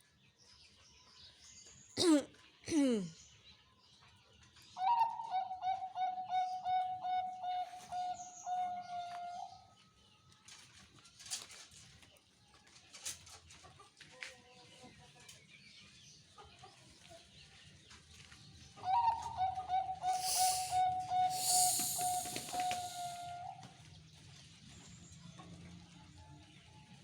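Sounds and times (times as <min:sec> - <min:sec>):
dove cooing: 0:18.9 - 0:23.3
hiss: 0:20.1 - 0:23.3.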